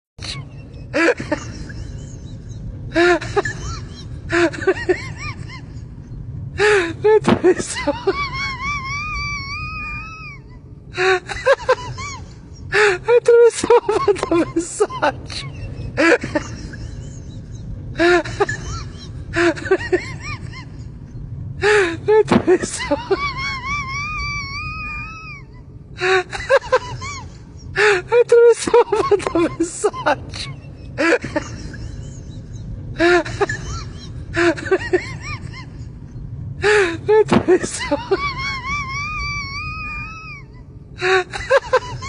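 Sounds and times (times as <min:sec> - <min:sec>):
low steady rumble: 0:00.2 - 0:42.0
whimpering cries: 0:21.6 - 0:32.1, 0:36.6 - 0:42.0.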